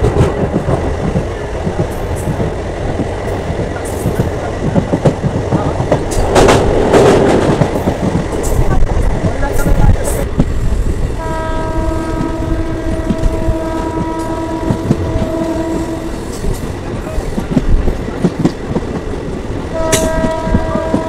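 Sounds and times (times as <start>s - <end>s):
train running rumble: 0.0s - 21.0s
train horn blast: 11.2s - 16.4s, 19.7s - 21.0s.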